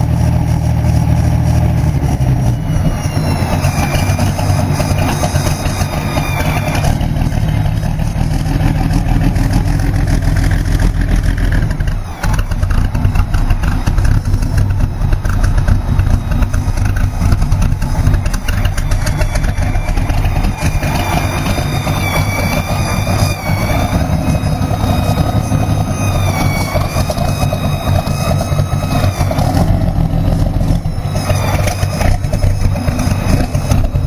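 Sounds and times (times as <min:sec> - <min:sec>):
aircraft engine deep rumble: 0:00.0 - 0:34.0.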